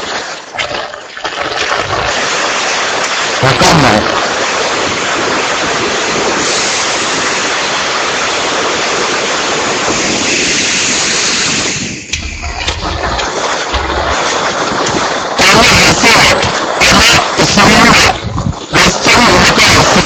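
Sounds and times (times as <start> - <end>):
wind and rain rushing: 0.0 - 20.0
wind gusts buffeting microphone: 1.8 - 20.0
microphone clicks: 12.1 - 15.1.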